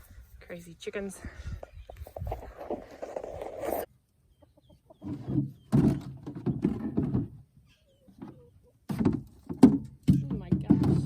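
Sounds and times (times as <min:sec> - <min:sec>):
chickens clucking: 0:04.0 - 0:07.0, 0:07.6 - 0:08.9.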